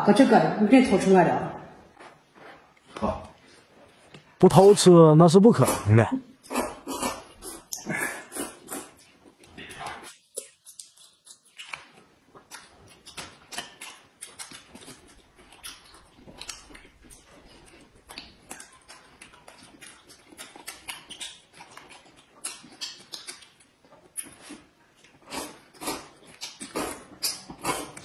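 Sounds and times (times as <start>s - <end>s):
wet chewing and lip-smacking: 6.4s - 28.0s.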